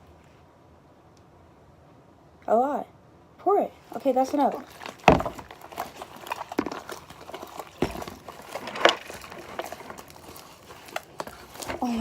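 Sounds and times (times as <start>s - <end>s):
slime squishing: 3.9s - 12.0s.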